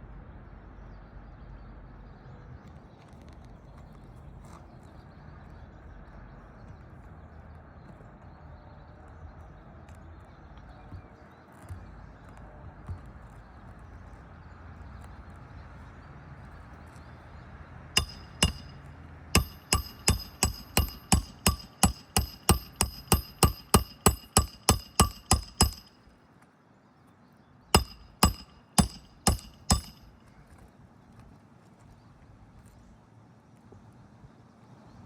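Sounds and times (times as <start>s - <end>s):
hammer striking nail: 18.0s - 26.0s, 27.8s - 30.1s.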